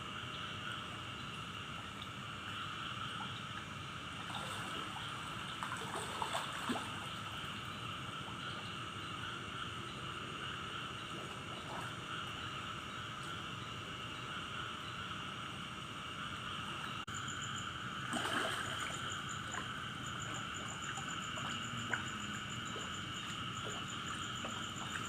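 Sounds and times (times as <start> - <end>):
insects chorus at night: 0.0 - 25.0
water splashes: 3.1 - 7.7, 18.0 - 25.0.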